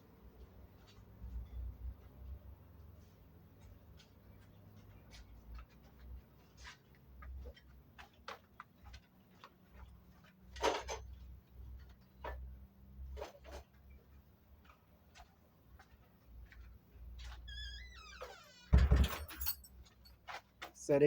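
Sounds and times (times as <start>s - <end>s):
tools clicking and knocking: 18.8s - 20.1s.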